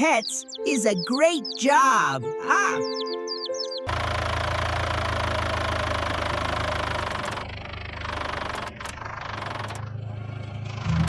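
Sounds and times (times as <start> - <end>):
tractor engine idling: 3.4 - 11.0.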